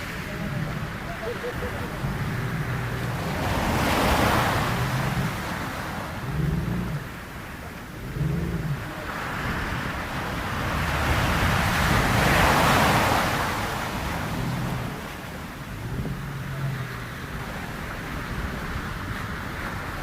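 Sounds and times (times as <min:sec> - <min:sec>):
low rumble: 0:00.0 - 0:12.2
ocean surf rushing: 0:00.0 - 0:20.0.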